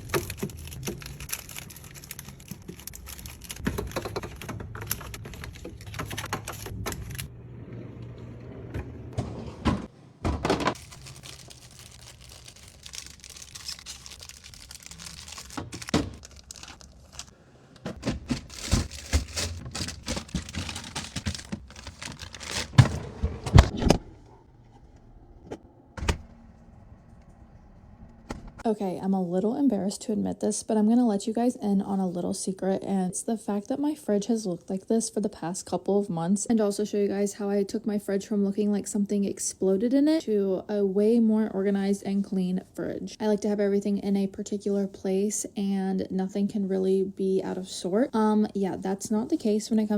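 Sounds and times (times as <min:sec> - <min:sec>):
household items clattering: 0:00.0 - 0:07.3, 0:08.8 - 0:24.1
rustling: 0:17.9 - 0:23.8.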